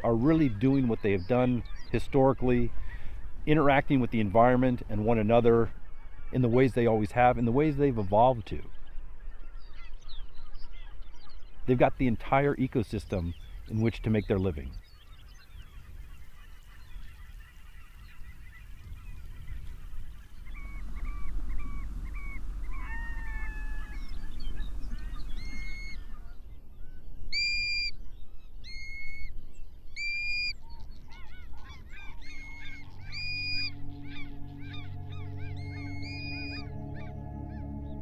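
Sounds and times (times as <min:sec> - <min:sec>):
geese honking: 0:15.5 - 0:26.5, 0:30.0 - 0:38.0
low rumble: 0:31.8 - 0:38.0.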